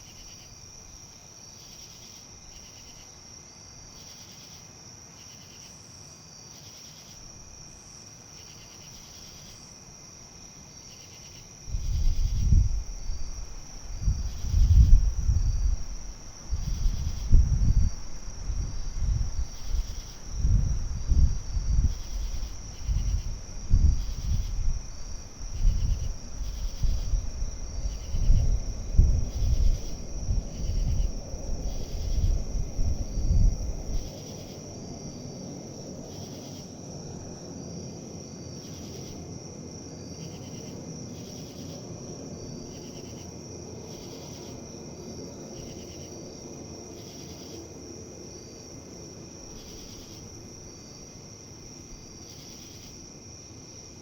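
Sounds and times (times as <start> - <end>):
crickets chirping: 0.0 - 54.0
wind rumbling on microphone: 11.5 - 38.5.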